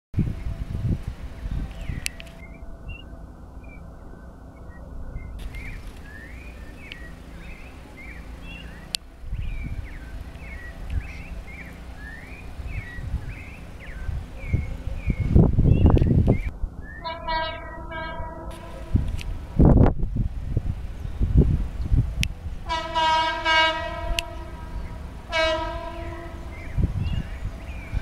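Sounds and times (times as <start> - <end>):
wind on microphone: 0.1 - 28.0
songbird chirping: 0.2 - 28.0.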